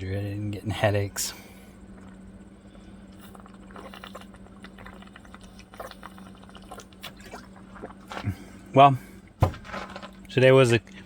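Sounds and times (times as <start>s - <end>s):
steady low hum: 0.0s - 11.0s
person drinking and swallowing: 3.0s - 8.7s.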